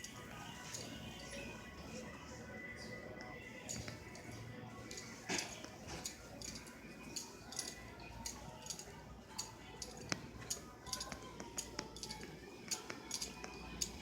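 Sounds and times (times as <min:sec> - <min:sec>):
faint background voices: 0:00.0 - 0:14.0
dishes and cutlery clinking: 0:04.9 - 0:14.0.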